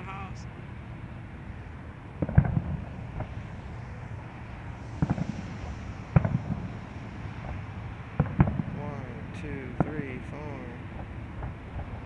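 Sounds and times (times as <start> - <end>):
distant fireworks bangs: 2.2 - 3.6, 4.8 - 12.0.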